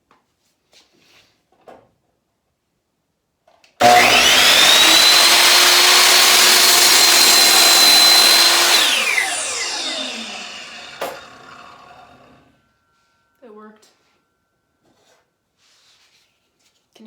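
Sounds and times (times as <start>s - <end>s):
miter saw cutting wood: 3.8s - 12.5s.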